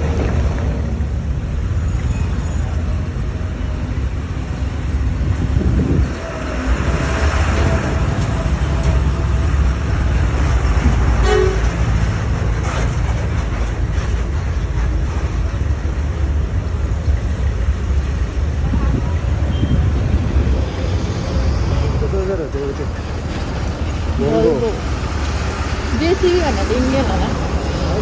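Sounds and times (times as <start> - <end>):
heavy vehicle engines rumbling: 0.0 - 28.0
short horn toot: 11.2 - 11.8.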